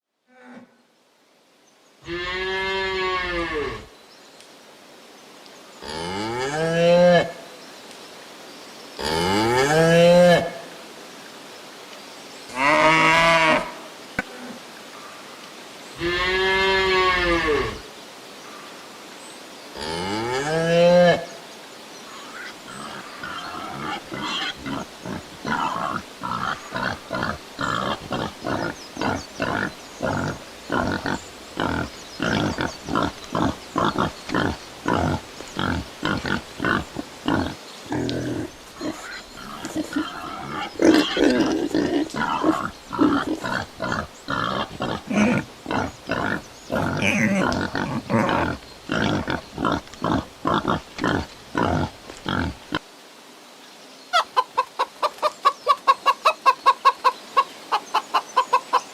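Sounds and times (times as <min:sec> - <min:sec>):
pig grunting: 0:22.4 - 0:52.8.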